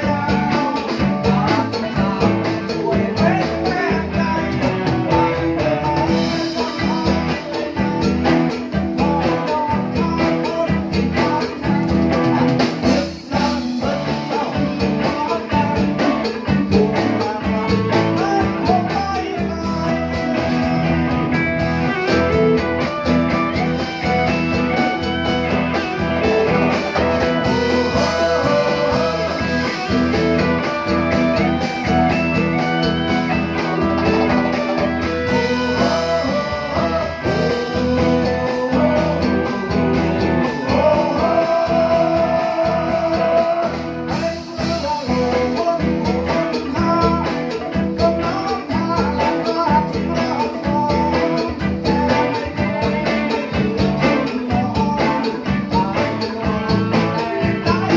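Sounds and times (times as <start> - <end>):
person singing: 0.0 - 57.9
plucked guitar: 0.0 - 57.9
steady drum beat: 0.0 - 57.9.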